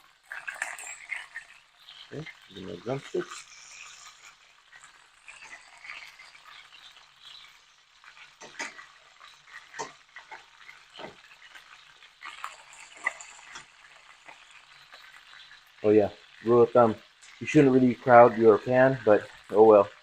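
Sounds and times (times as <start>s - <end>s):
chicken sizzling in hot oil: 0.0s - 20.0s
meat clacking into pan: 3.3s - 15.8s.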